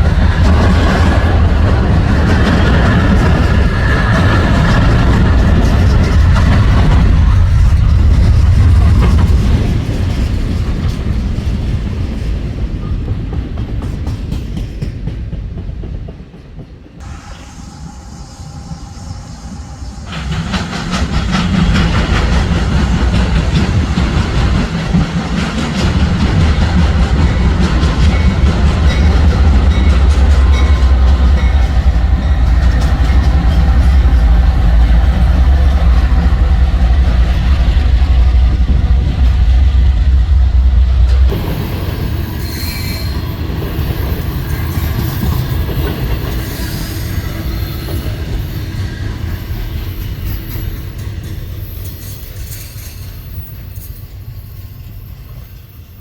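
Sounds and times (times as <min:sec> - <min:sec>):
train passing with heavy rumble: 0:00.0 - 0:56.0.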